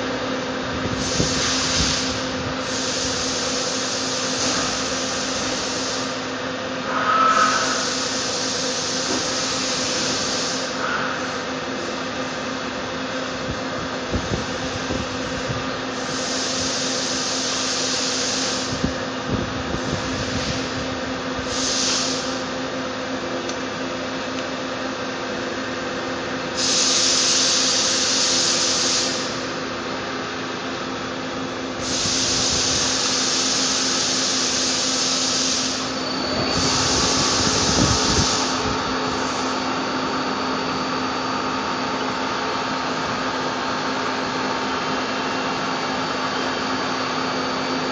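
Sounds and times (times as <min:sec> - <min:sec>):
machine humming: 0:29.3 - 0:47.9.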